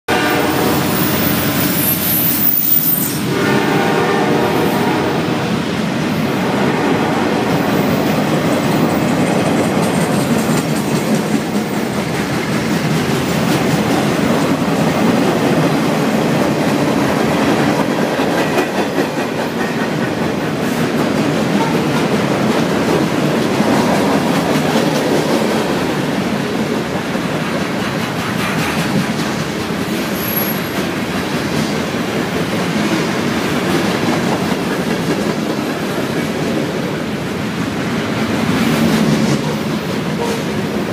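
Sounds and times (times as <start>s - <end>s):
freight train rumbling past: 0.1s - 40.9s
wheels clacking over rail joints: 7.5s - 37.0s.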